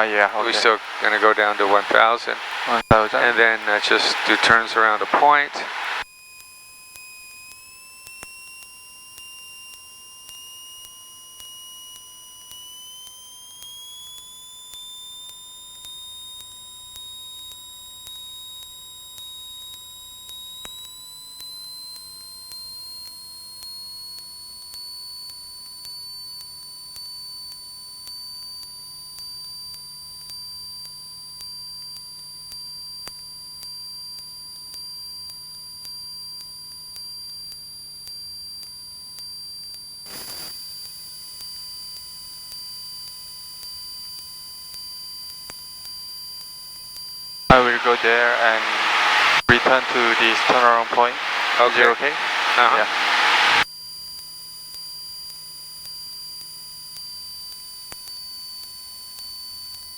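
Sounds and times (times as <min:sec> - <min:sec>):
faint low hum: 0:00.0 - 0:06.0, 0:47.5 - 0:53.6
intercom electrical whine: 0:00.0 - 0:06.0, 0:47.5 - 0:53.6.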